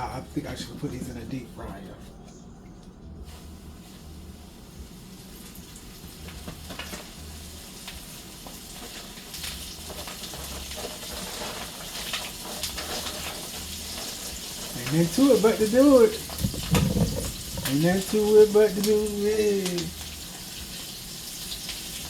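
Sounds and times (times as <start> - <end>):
food sizzling in grease: 3.2 - 22.0
grease popping and spattering: 5.8 - 22.0.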